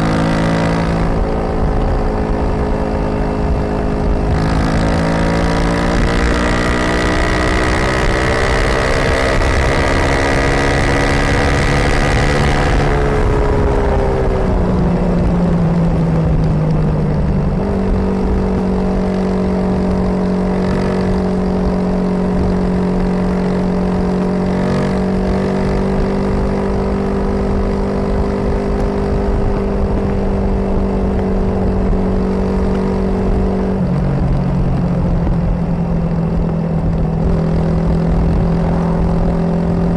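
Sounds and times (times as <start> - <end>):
motorcycle engine riding: 0.0 - 39.9
low rumble: 11.9 - 20.0, 29.1 - 39.9.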